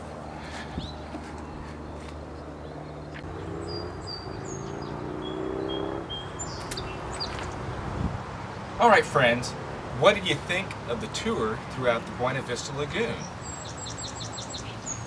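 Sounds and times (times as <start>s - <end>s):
wild birds chirping: 0.0s - 15.0s.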